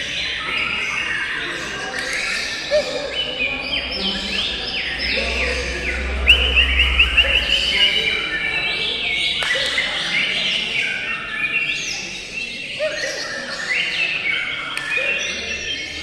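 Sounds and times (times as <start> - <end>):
songbirds chirping and singing: 0.0 - 16.0
low hum: 3.2 - 9.3.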